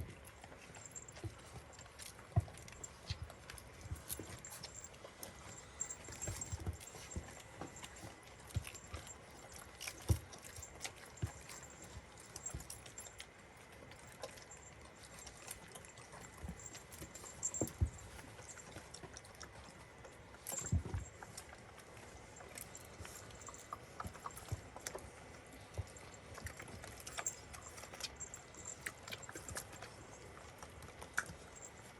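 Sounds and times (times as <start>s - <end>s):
small collar bells jingling: 0.4s - 1.9s, 4.0s - 13.2s, 13.9s - 18.8s, 22.4s - 24.5s, 26.8s - 30.2s.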